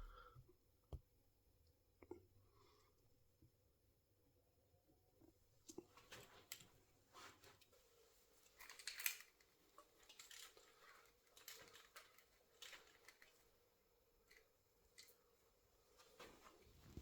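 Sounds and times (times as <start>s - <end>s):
faint clicks of parts: 5.6s - 13.6s, 14.2s - 17.0s.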